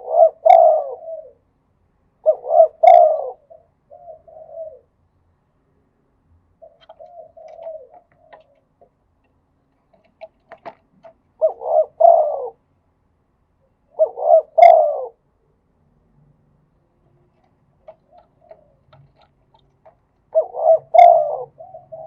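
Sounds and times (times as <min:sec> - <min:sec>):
dove cooing: 0:00.0 - 0:01.5, 0:02.2 - 0:05.0, 0:06.6 - 0:09.0, 0:09.9 - 0:12.6, 0:13.9 - 0:15.2, 0:17.1 - 0:22.0
faint clicks: 0:17.3 - 0:20.3.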